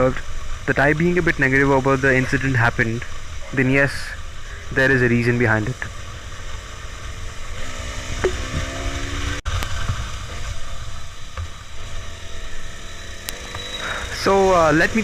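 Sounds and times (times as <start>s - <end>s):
traffic rumble and hiss: 0.0s - 15.0s
faint pitched tone: 8.2s - 9.2s.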